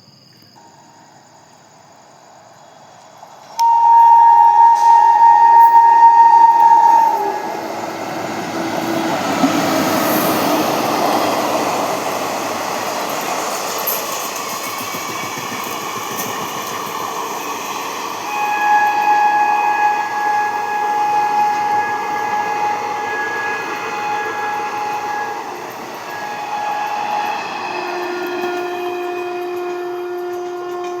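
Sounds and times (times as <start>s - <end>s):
train running on tracks: 0.0s - 31.0s
train horn blast: 3.5s - 11.0s, 18.2s - 31.0s.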